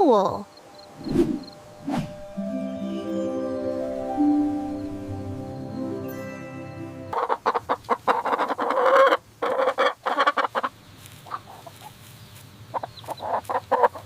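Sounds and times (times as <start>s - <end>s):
clucking animal calls: 7.2s - 12.1s, 12.7s - 14.0s.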